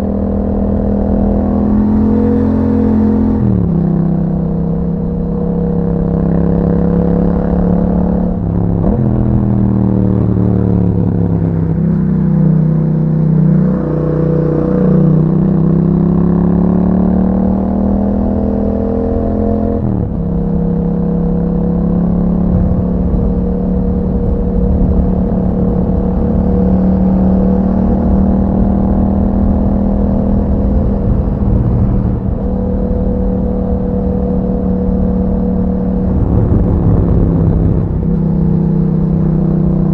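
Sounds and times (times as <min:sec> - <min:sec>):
motorcycle engine running: 0:20.0 - 0:39.9.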